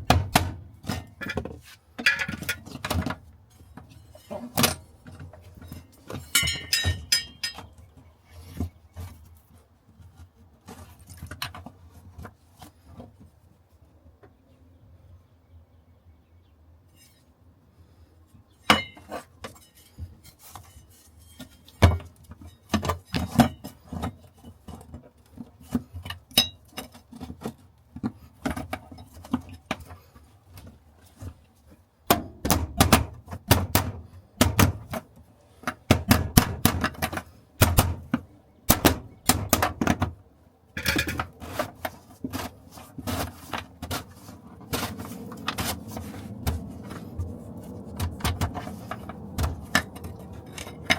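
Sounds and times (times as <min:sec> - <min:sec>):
hand tools and metal clinking: 0:00.2 - 0:09.2, 0:18.6 - 0:31.8, 0:33.5 - 0:50.9.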